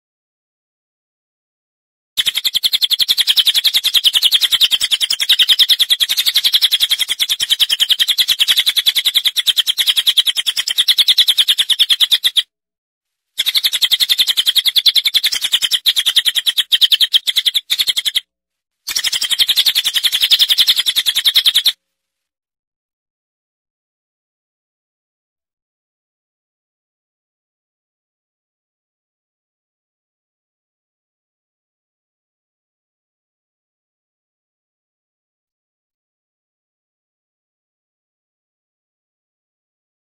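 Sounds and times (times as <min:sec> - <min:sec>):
songbird rattling trill: 0:02.2 - 0:12.4, 0:13.4 - 0:18.3, 0:18.9 - 0:21.8.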